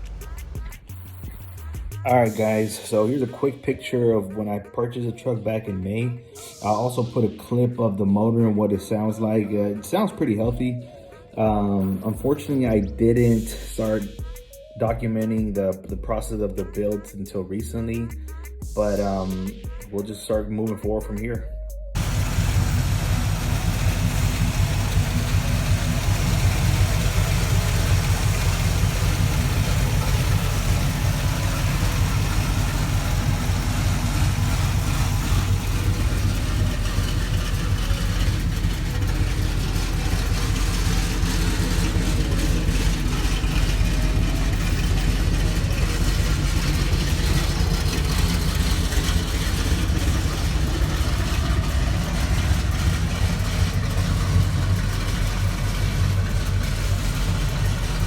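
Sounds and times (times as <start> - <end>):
pickup engine idling: 0.0 - 3.6, 21.1 - 58.0
person talking: 2.0 - 21.5.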